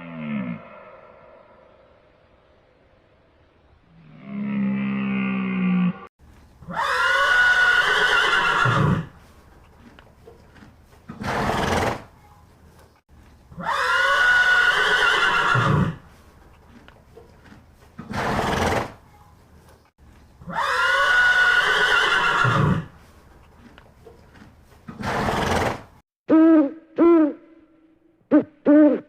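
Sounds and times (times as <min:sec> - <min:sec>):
horse whinnying: 0:06.7 - 0:09.1, 0:13.6 - 0:16.0, 0:20.5 - 0:22.9
horse breathy snort: 0:24.9 - 0:25.9.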